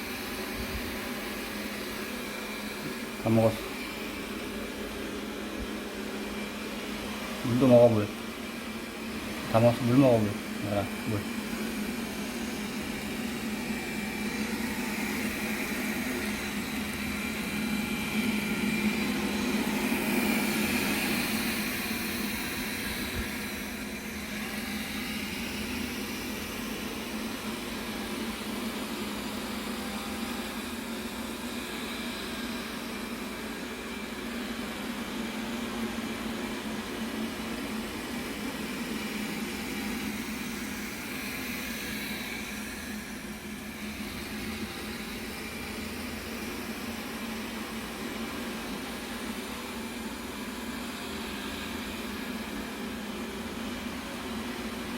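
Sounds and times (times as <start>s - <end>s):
robot vacuum whirring: 8.8s - 26.5s.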